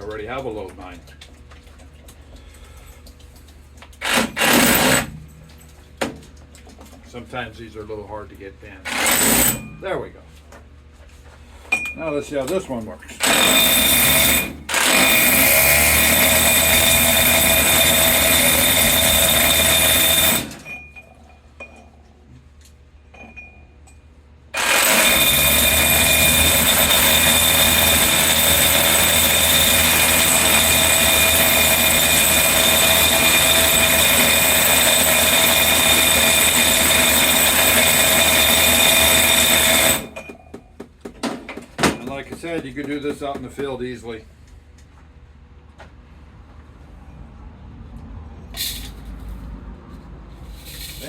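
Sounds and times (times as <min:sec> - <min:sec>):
hammer drill pounding ore: 0:04.0 - 0:05.2, 0:08.9 - 0:09.8, 0:13.2 - 0:20.8, 0:24.6 - 0:40.4.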